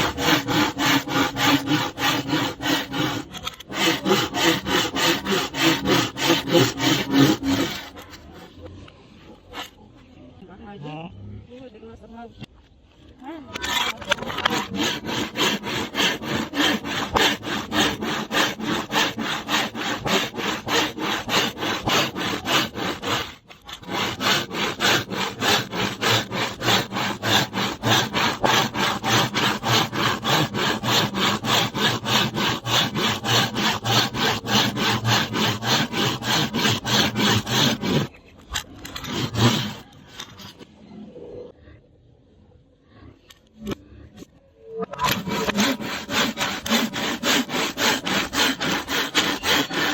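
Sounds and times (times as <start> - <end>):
hand saw cutting bamboo: 0.0 - 8.2, 13.6 - 38.1, 38.8 - 40.0, 45.0 - 49.9.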